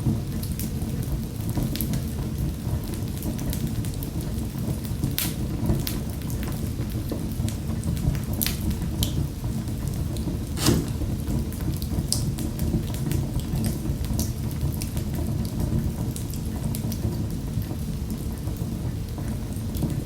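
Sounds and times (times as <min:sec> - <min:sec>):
wood fire crackling: 0:09.8 - 0:11.6
sharp fire pops: 0:10.6 - 0:11.2.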